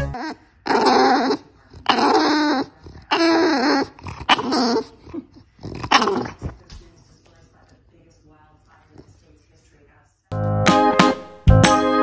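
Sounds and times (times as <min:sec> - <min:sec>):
dog vocalizing: 0:00.0 - 0:06.7.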